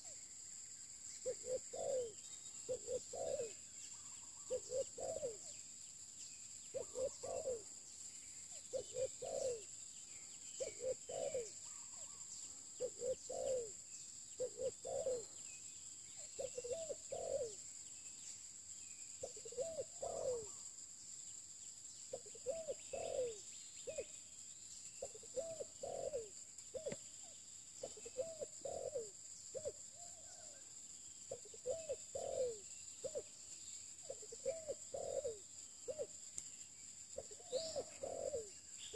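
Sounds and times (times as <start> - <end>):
dove cooing: 1.2 - 5.6, 6.7 - 7.7, 8.7 - 9.7, 10.6 - 12.2, 12.8 - 13.8, 14.4 - 15.3, 16.4 - 17.6, 19.2 - 20.6, 22.1 - 24.1, 25.0 - 27.0, 27.8 - 30.1, 31.3 - 33.3, 34.0 - 36.1, 37.2 - 38.9.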